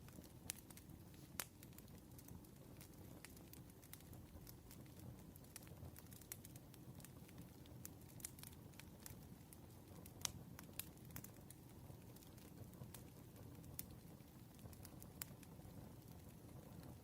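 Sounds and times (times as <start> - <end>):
campfire crackling and popping: 0.0 - 17.0
low rumble of burning wood: 0.0 - 17.0.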